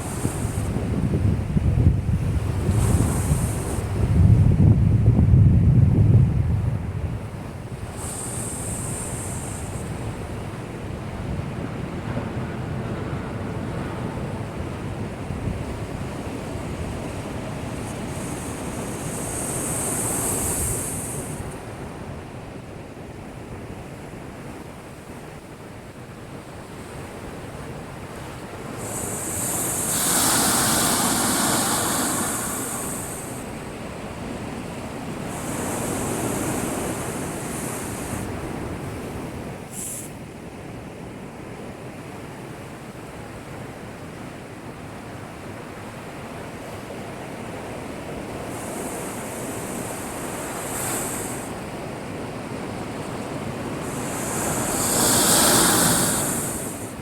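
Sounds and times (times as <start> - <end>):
surf crashing on breakwater: 26.5 - 40.3, 45.3 - 57.0.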